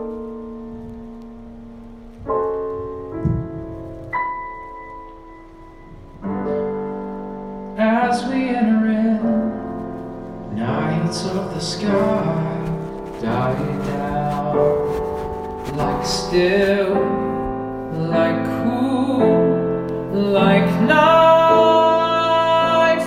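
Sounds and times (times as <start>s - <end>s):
piano chords: 0.0s - 23.0s
man singing: 10.5s - 15.0s, 15.6s - 17.2s, 17.9s - 23.0s.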